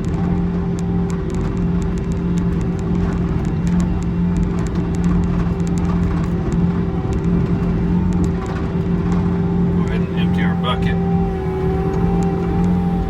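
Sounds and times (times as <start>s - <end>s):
light ticking and clatter: 0.0s - 9.4s
skid loader engine running: 0.0s - 13.0s.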